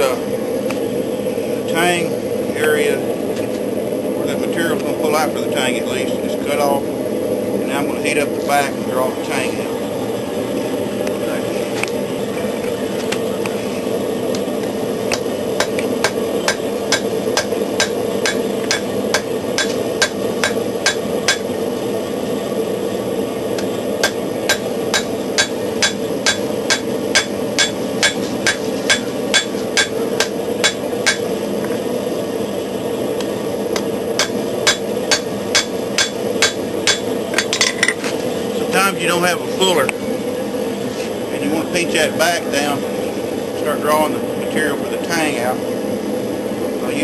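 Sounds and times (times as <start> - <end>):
forge roaring: 0.0 - 47.0
hammer striking steel on anvil: 15.1 - 21.5, 24.0 - 31.3, 34.2 - 37.6.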